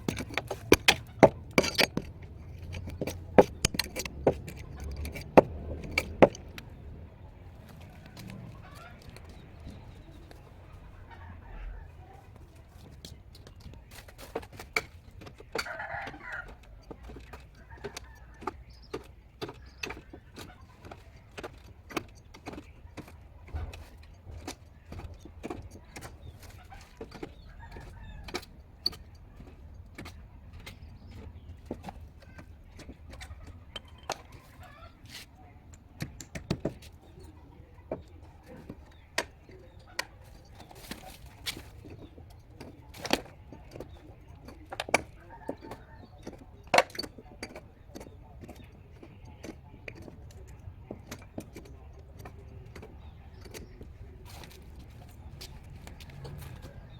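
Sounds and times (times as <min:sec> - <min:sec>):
tool knocks and taps: 0:00.0 - 0:06.7, 0:35.7 - 0:37.0.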